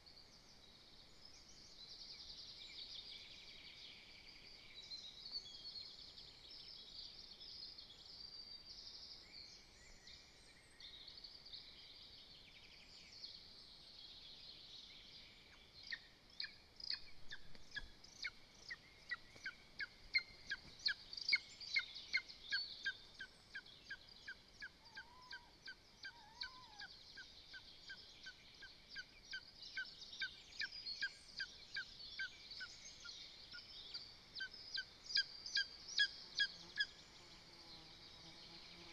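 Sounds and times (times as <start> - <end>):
songbirds chorus: 0.0 - 38.9
eagle yelping calls: 24.8 - 26.9.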